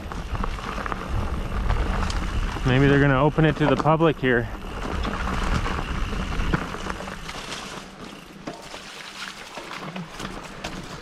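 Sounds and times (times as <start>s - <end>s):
wind rumbling on microphone: 0.0s - 8.2s
bike rattling: 0.0s - 11.0s
tyres on dirt trail: 0.0s - 11.0s.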